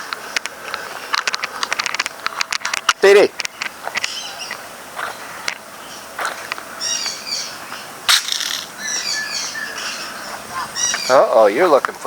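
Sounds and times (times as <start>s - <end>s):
birds warbling chatter: 0.8s - 12.0s
sharp crunching clicks: 8.1s - 8.7s.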